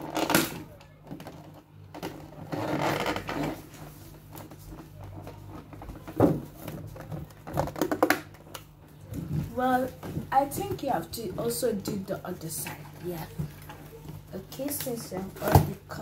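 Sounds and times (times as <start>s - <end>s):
cardboard rustling and scraping: 0.0s - 12.0s, 12.6s - 16.0s.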